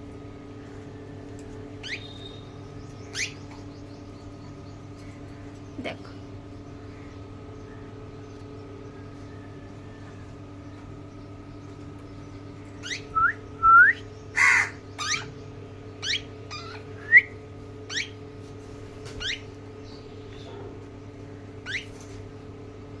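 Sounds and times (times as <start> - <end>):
bird harsh squawk: 14.4 - 15.3.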